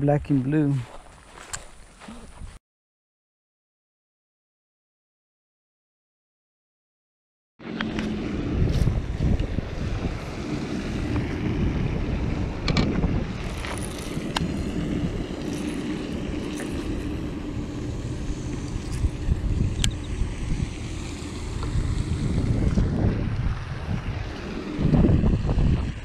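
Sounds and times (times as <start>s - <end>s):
wind buffeting microphone: 7.8s - 26.0s.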